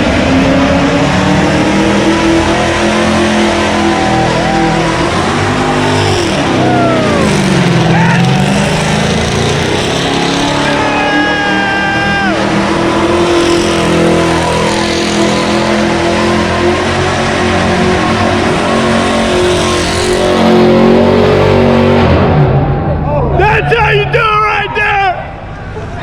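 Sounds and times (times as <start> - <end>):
car engines revving: 0.0 - 26.0
crowd yelling and whooping: 0.9 - 12.6, 22.3 - 26.0
long held shout: 3.6 - 8.6, 10.7 - 12.5.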